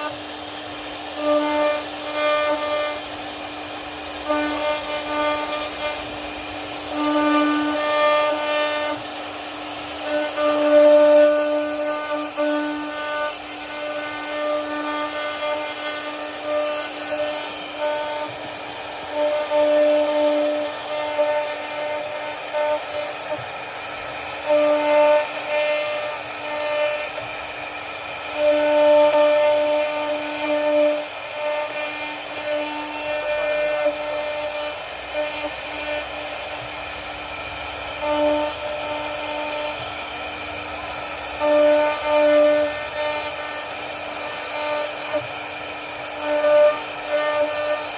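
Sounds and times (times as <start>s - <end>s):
router bit carving wood: 0.0s - 47.9s.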